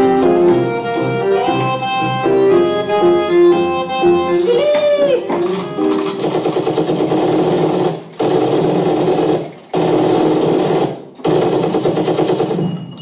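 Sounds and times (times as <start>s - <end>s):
rapid machine-like rattling: 5.5s - 13.0s.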